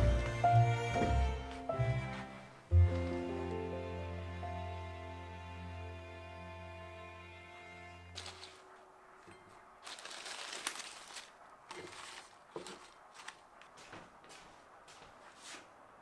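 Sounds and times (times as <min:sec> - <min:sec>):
herb leaves rustling: 0:08.2 - 0:13.9.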